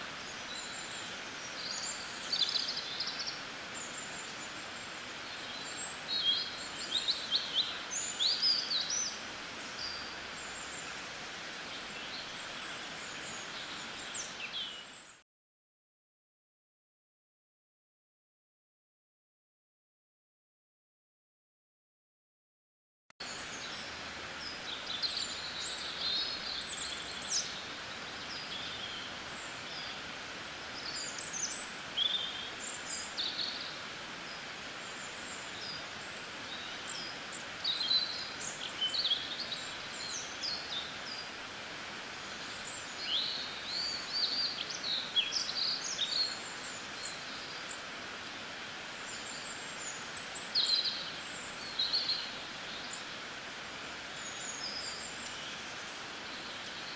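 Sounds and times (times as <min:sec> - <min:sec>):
steady background hiss: 0:00.0 - 0:15.1, 0:23.2 - 0:56.9
small birds chirping: 0:00.0 - 0:15.2, 0:23.2 - 0:48.1, 0:48.8 - 0:53.4.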